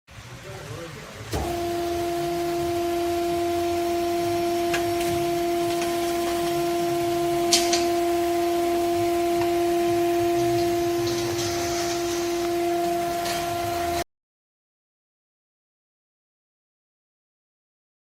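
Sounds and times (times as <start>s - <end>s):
machine running steady tone: 1.2s - 14.0s.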